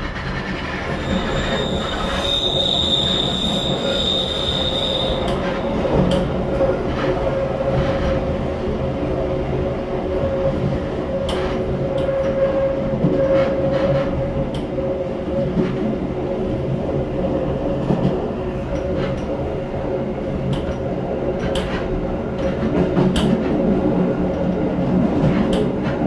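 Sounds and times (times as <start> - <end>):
train mechanical hum: 0.0 - 26.0.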